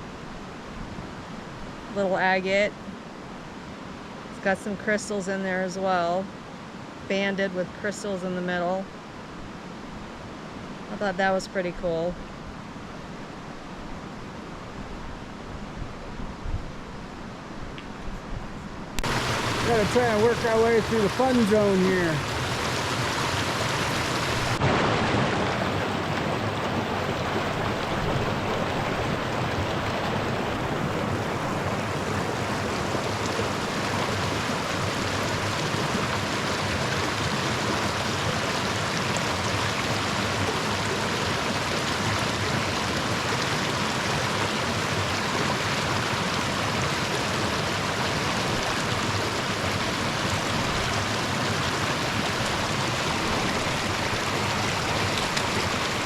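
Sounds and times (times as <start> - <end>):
creek water rushing: 19.0 - 56.0.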